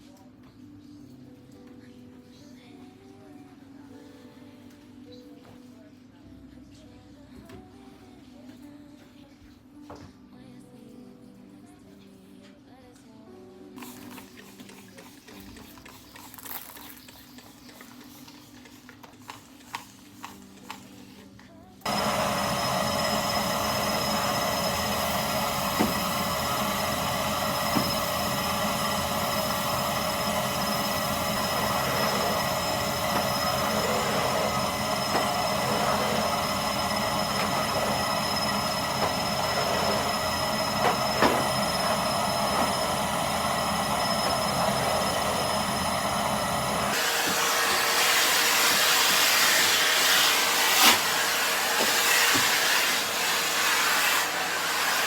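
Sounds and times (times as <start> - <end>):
vacuum cleaner running: 21.8 - 55.0.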